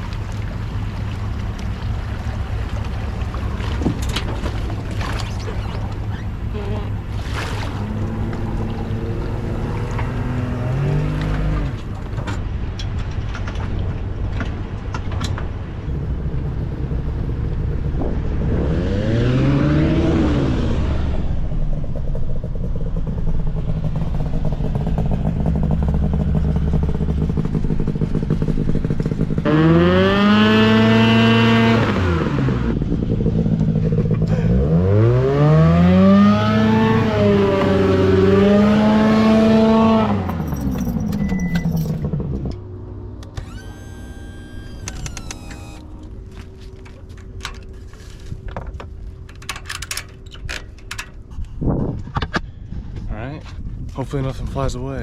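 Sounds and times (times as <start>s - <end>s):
engine revving: 6.5s - 11.9s, 18.1s - 21.4s, 23.0s - 45.9s.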